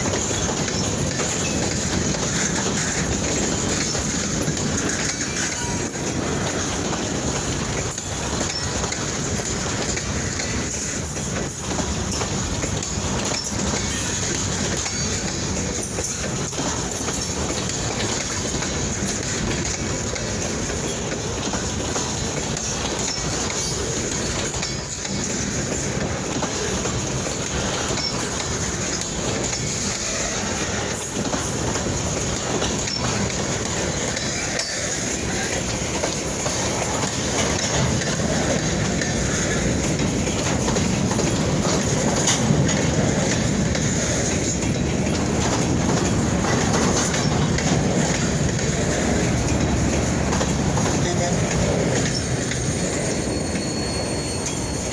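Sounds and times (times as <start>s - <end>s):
freight train wheels rumbling on rail: 0.0s - 54.9s.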